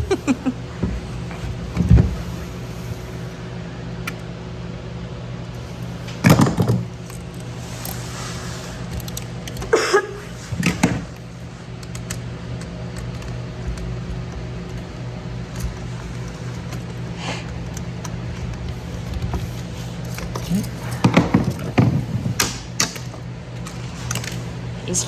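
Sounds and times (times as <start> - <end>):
low electrical hum: 0.0 - 25.0
tools and parts clunking: 5.6 - 24.7.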